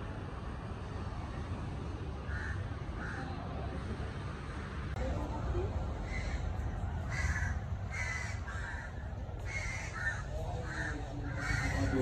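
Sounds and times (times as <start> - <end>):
bird calling: 6.0 - 12.0.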